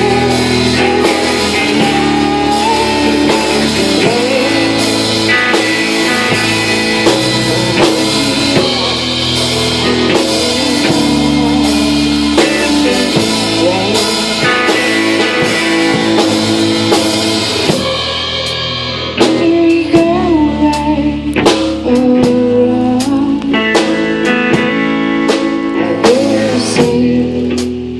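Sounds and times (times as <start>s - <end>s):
cymbals: 0.0s - 20.2s
drum kit: 0.0s - 27.9s
electric guitar: 0.0s - 27.9s
person singing: 0.0s - 27.9s.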